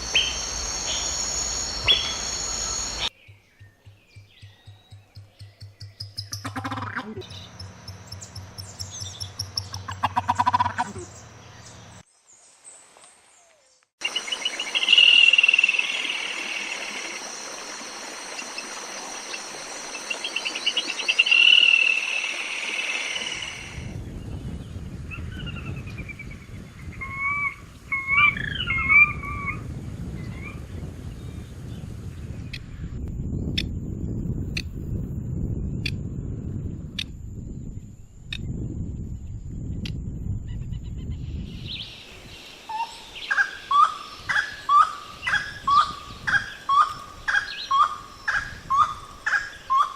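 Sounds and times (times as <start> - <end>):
sliding whistled bird calls: 0.0 - 5.0.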